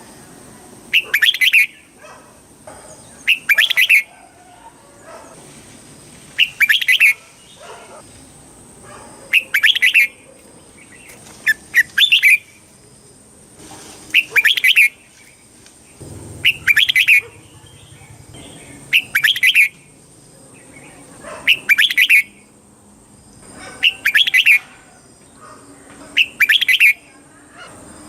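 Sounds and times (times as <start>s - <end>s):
bird singing warbled phrase: 0.9s - 2.0s, 3.2s - 4.1s, 16.0s - 19.9s, 20.5s - 22.4s, 23.8s - 24.7s.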